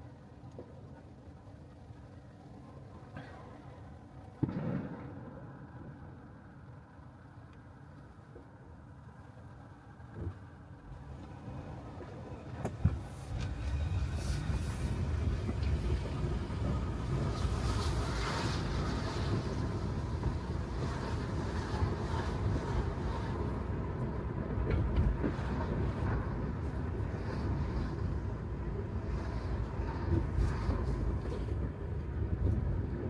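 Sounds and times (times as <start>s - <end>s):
tyres rolling on wet road: 13.2s - 33.0s.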